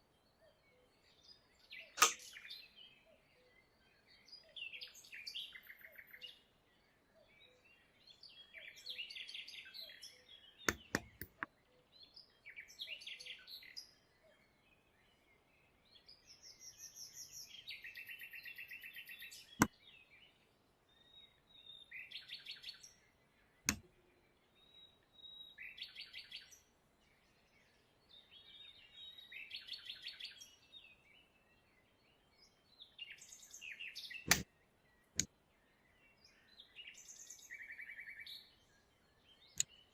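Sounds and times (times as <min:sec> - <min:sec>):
sharp clicks: 0:02.0 - 0:02.3, 0:10.7 - 0:11.5, 0:34.3 - 0:34.5.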